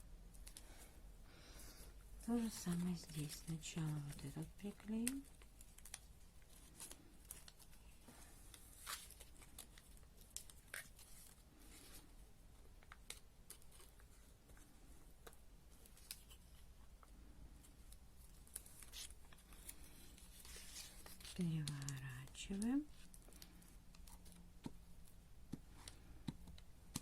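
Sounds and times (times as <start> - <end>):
paper rustling: 2.2 - 12.2, 17.9 - 26.2.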